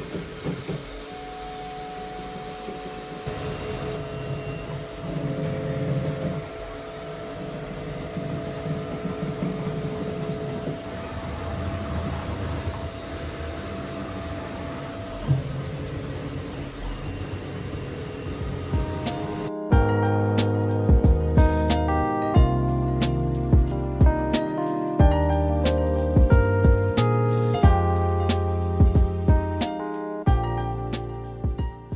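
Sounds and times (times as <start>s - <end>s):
grinder mechanical whir: 0.0s - 19.5s
low rumble: 3.3s - 19.5s.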